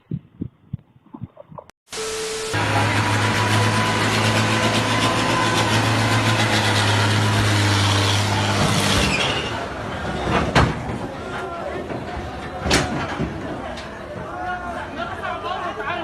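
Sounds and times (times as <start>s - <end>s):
heavy vehicle engine drone: 2.0s - 11.2s.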